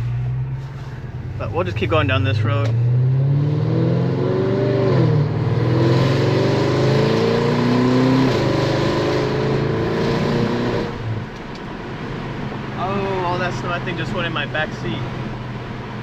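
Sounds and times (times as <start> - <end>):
road and tyre hiss: 0.0 - 1.9
car engine accelerating: 0.0 - 16.0.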